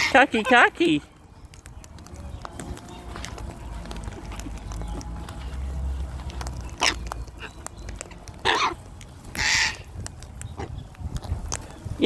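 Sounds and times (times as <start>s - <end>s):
cockatoo screeching: 0.0s - 0.7s, 8.4s - 9.9s.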